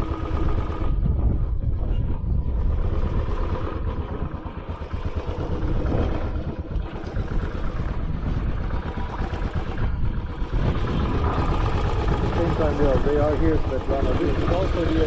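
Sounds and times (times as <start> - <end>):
heavy uneven low rumble: 0.0 - 15.0
motorcycle engine running: 0.0 - 15.0.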